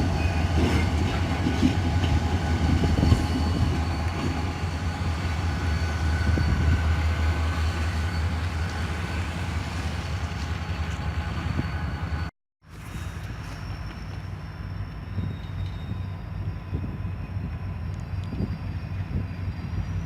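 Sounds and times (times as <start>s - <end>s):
freight train rumbling past: 0.0s - 20.0s.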